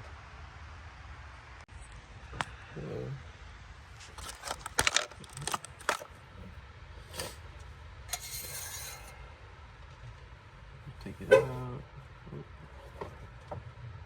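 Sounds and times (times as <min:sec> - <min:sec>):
handling clicks and knocks: 0:04.1 - 0:06.2.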